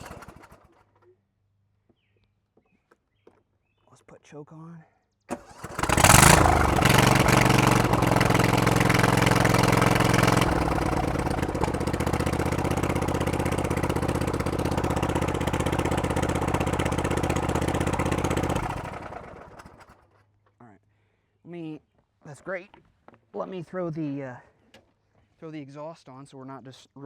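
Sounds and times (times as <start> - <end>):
lawn tractor engine starting and running: 0.0 - 1.1, 5.3 - 20.0.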